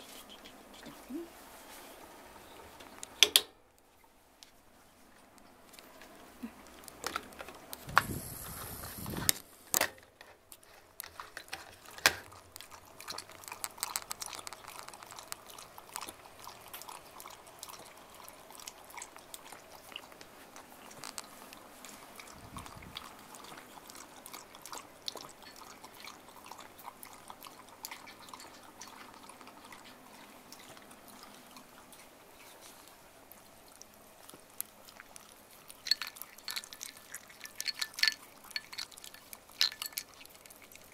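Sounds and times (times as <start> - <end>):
dog lapping water: 11.8 - 40.9.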